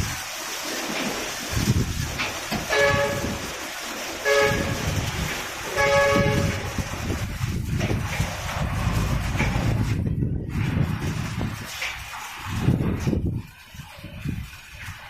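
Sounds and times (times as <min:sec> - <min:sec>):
chord horn honking: 0:02.7 - 0:03.4, 0:04.2 - 0:04.9, 0:05.7 - 0:06.8
low uneven rumble: 0:04.5 - 0:15.0.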